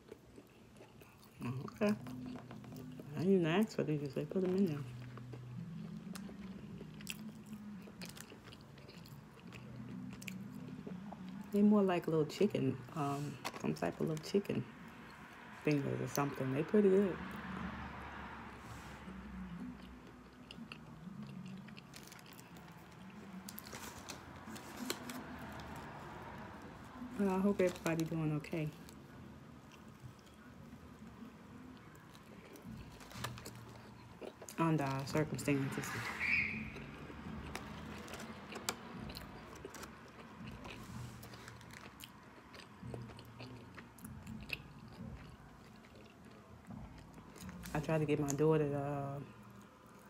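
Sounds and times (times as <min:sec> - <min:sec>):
chewing with mouth clicks: 0:00.0 - 0:03.2, 0:04.2 - 0:11.6, 0:19.4 - 0:26.0, 0:28.8 - 0:34.6, 0:36.2 - 0:48.4.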